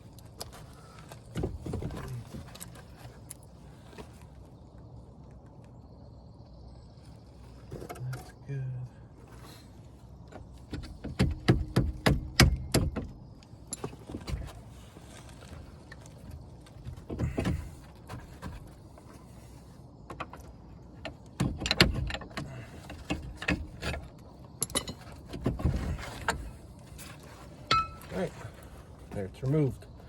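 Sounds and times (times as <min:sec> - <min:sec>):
metal clicks and clinks: 0:24.6 - 0:25.2.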